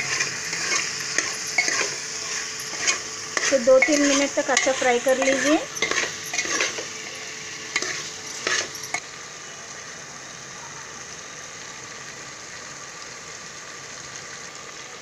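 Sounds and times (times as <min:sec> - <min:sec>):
metal ladle scraping pot: 0:00.0 - 0:09.0
meat sizzling in oil: 0:00.0 - 0:15.0.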